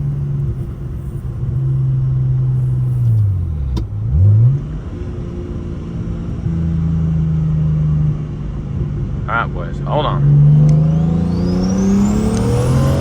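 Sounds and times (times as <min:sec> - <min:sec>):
car engine running: 0:00.0 - 0:13.0
loud engine rev blip: 0:10.2 - 0:13.0
click: 0:12.3 - 0:12.5.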